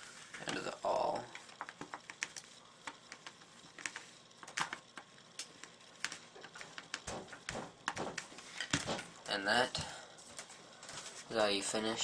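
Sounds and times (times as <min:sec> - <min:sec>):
toy gun parts clicking and tapping: 0:00.4 - 0:09.0.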